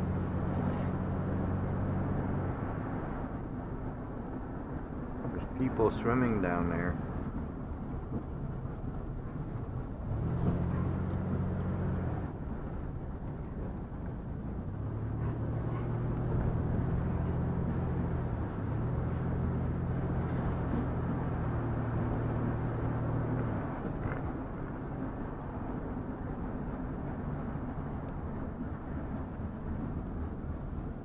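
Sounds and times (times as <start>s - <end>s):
road noise: 0.0s - 31.0s
vehicle engine hum: 0.0s - 31.0s.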